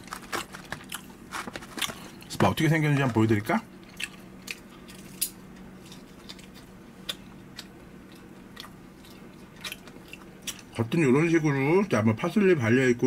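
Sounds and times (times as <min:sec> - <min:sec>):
person chewing crunchily: 0:00.0 - 0:02.4, 0:03.7 - 0:10.8
faint steady hum: 0:00.0 - 0:13.0.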